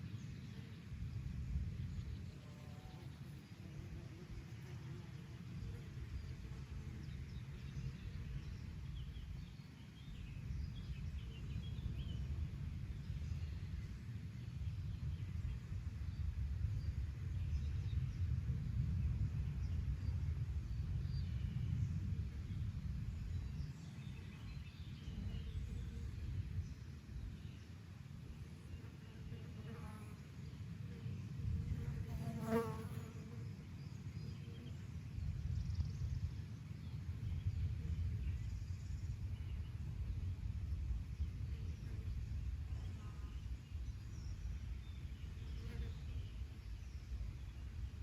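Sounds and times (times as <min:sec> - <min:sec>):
wind rumbling on microphone: 0:00.0 - 0:48.0
insect buzzing past: 0:02.4 - 0:07.1, 0:28.4 - 0:34.9, 0:41.5 - 0:46.6.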